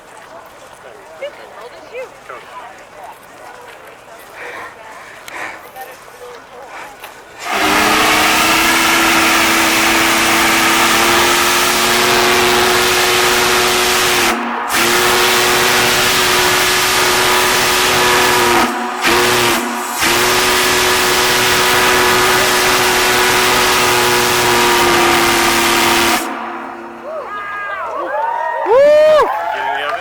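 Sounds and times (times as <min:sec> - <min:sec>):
steam hiss: 0:07.3 - 0:27.0
steam whistle blasts: 0:07.4 - 0:27.5.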